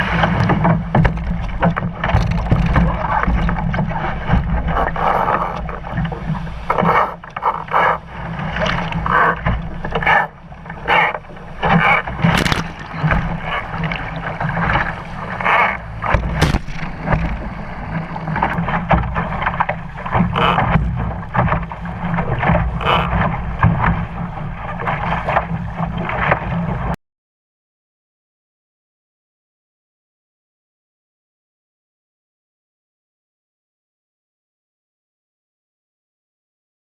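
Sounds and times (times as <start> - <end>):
water slapping against boat hull: 0.0 - 27.0
water splashes: 0.0 - 27.0.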